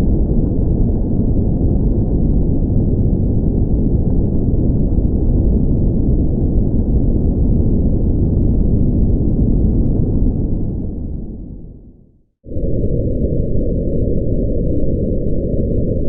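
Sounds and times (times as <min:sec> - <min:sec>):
loud low rumble: 0:12.5 - 0:16.0.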